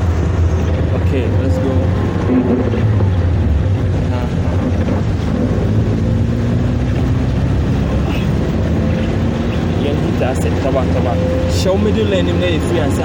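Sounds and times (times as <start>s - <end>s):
car engine drone inside cabin: 0.0s - 13.0s.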